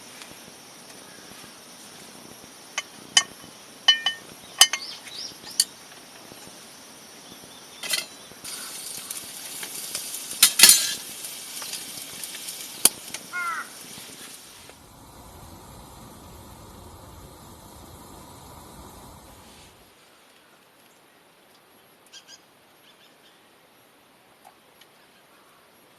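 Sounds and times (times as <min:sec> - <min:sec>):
steady hiss: 0:00.0 - 0:20.6.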